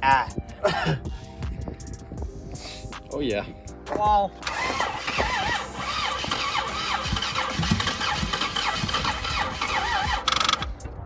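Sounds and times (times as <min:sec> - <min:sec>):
starter cranking engine: 0:04.4 - 0:10.8.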